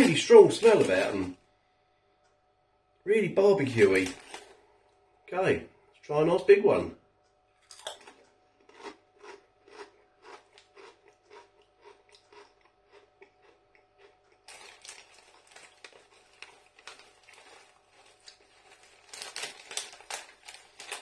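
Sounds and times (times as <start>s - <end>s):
potato crisp crunching: 0.0s - 1.3s, 3.4s - 4.6s, 7.6s - 21.0s.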